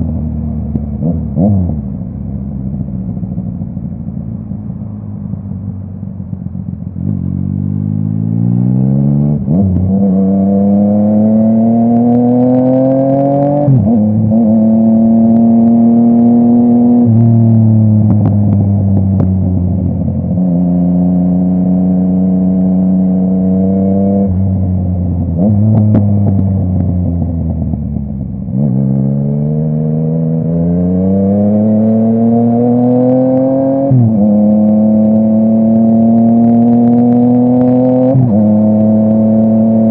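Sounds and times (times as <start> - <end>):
motorcycle engine accelerating: 0.0 - 39.9
exhaust pops and crackles: 18.0 - 20.0.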